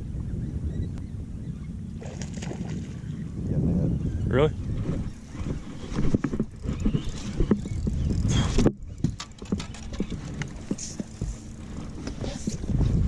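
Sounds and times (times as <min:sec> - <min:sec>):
knocks and thumps on a boat: 0:04.8 - 0:13.0.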